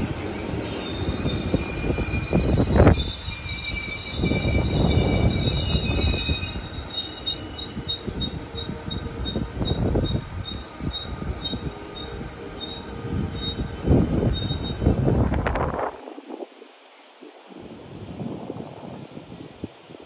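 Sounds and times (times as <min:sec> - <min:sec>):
high wheel squeal: 0:00.0 - 0:15.3
train wheels rumbling on rails: 0:00.0 - 0:16.1.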